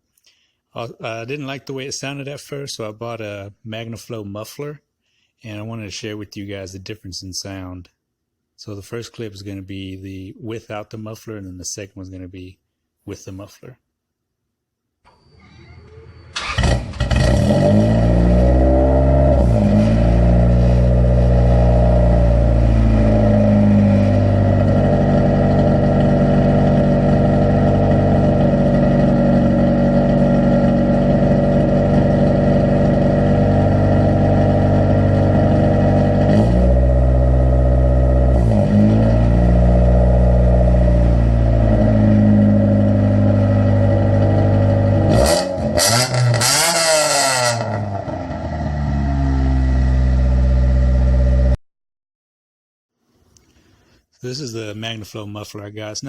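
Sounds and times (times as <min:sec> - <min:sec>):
car engine revving and idling: 0:15.9 - 0:51.6.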